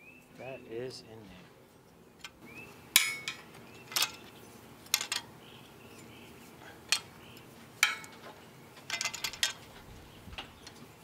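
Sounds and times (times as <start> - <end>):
metal tools clinking: 3.0 - 4.3, 4.9 - 5.3, 7.8 - 9.7.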